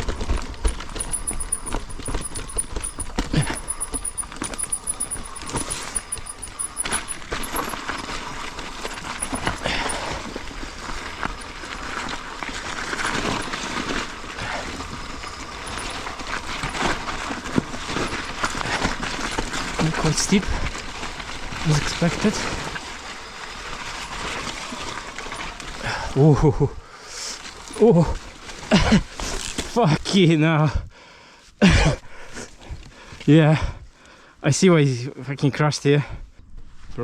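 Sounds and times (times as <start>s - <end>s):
bike chain and frame rattling: 0.0s - 26.3s, 27.3s - 29.7s
bike tyres on dirt: 0.0s - 26.3s.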